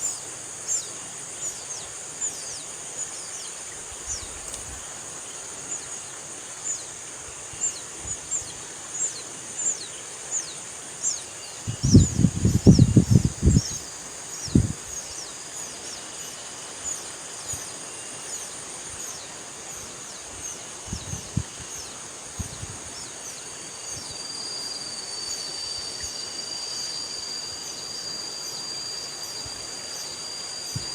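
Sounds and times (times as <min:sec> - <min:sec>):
high insect buzz: 0:00.0 - 0:30.9
steady high whine: 0:00.0 - 0:30.9.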